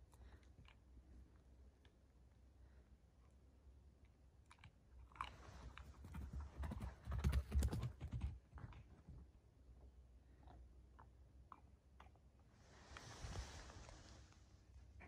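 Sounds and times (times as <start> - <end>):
puppy chewing a bone: 3.9 - 6.0.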